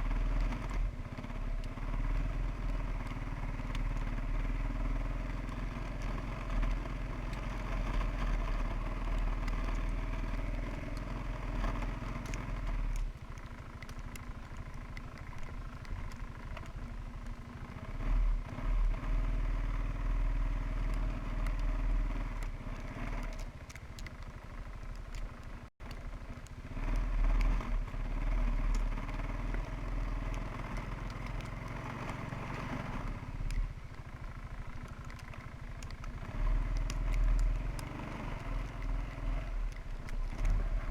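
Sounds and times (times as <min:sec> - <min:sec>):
quad bike engine revving: 0:17.6 - 0:23.4, 0:26.1 - 0:40.9.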